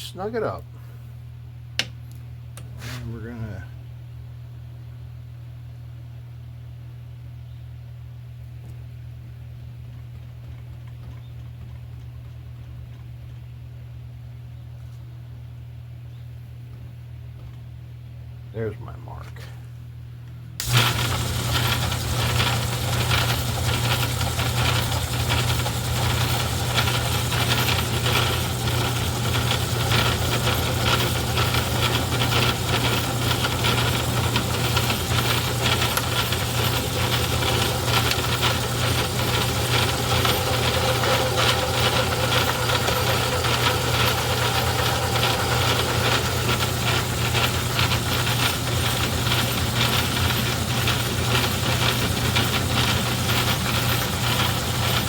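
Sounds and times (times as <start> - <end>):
metal lathe running: 20.6 - 55.0.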